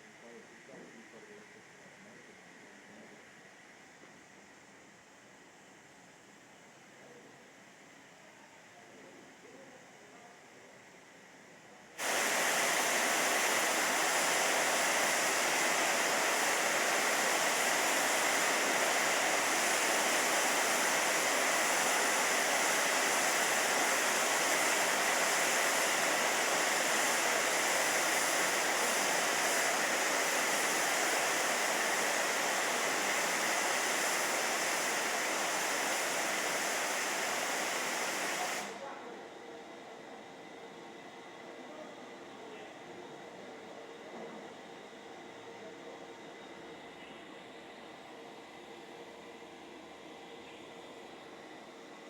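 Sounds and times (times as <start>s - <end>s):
steam locomotive hissing steam: 11.9s - 52.0s.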